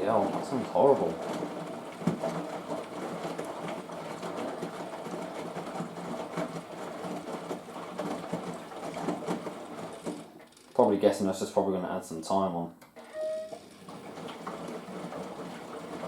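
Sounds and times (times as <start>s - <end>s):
washing machine clattering: 0.0s - 11.3s, 13.2s - 16.0s.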